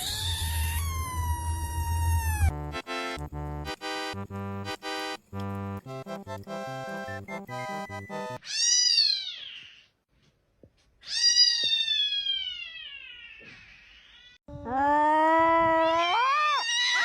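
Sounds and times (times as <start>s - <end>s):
rhythmic music: 2.5s - 8.4s.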